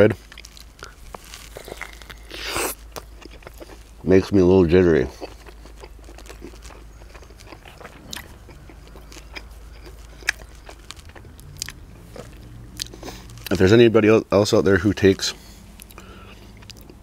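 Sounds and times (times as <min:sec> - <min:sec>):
person chewing: 0:00.2 - 0:04.1, 0:05.0 - 0:13.6, 0:15.4 - 0:17.0
low hum: 0:05.5 - 0:14.0.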